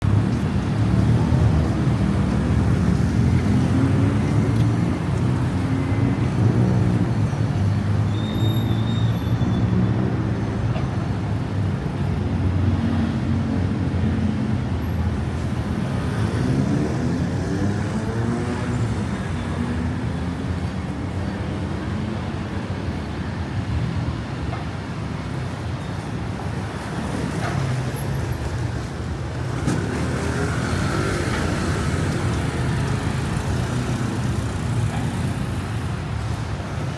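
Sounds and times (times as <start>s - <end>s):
car and bus engines passing: 0.0s - 36.9s.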